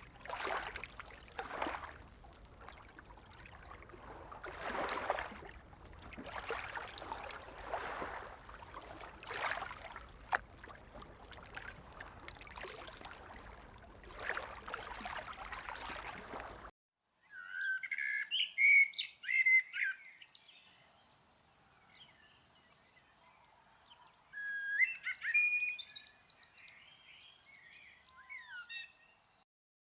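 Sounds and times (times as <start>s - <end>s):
rushing water: 0.0s - 16.7s
songbirds chirping and whistling: 17.3s - 20.8s, 21.9s - 29.4s.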